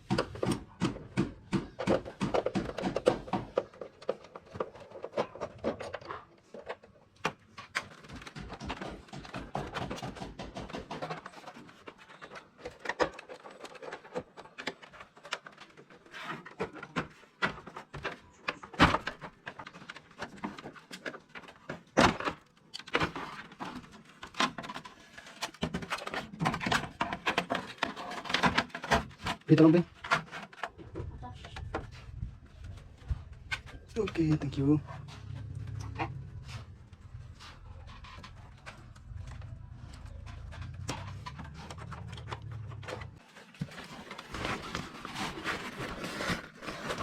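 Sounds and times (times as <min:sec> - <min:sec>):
objects clicking and knocking: 0:00.0 - 0:47.0.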